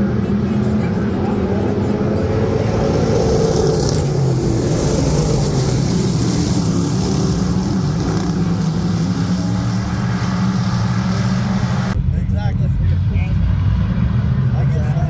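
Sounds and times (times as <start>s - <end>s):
race car engines droning: 0.0s - 15.0s.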